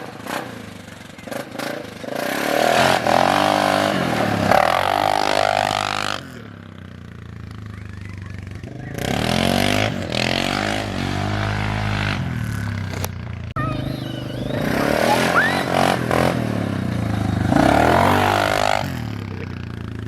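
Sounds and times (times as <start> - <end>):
engine revving: 0.0 - 20.0
brief rising squeal: 13.6 - 16.0.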